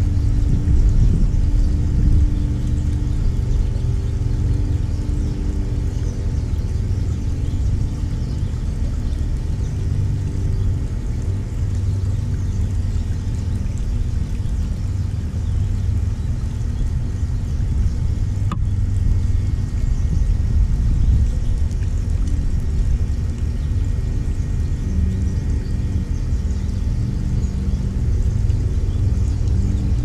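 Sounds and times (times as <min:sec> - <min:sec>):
low mechanical rumble: 0:00.0 - 0:30.0.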